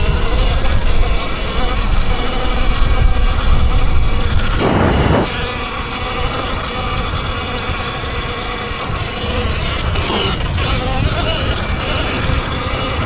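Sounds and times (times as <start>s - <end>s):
electric motor whine: 0.0s - 13.0s
wind rumble on microphone: 0.0s - 13.0s
short rush of noise: 4.6s - 5.3s.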